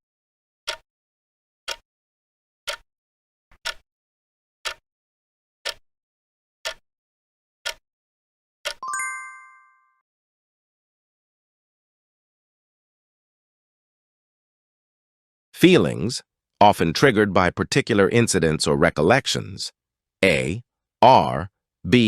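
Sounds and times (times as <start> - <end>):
clock-like ticking: 3.6 - 3.8, 4.6 - 4.8, 5.6 - 5.8, 6.6 - 6.8, 7.6 - 7.8
bright bell chime: 8.8 - 10.0.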